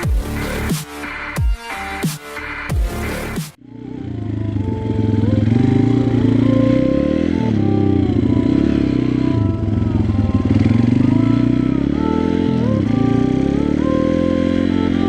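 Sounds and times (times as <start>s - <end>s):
motorbike engine running: 3.6s - 15.0s.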